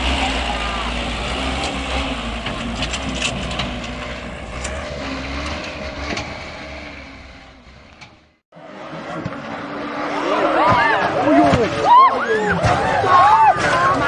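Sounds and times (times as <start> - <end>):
heavy vehicle rumbling: 0.0 - 14.0
knocks and clatter: 1.4 - 8.4.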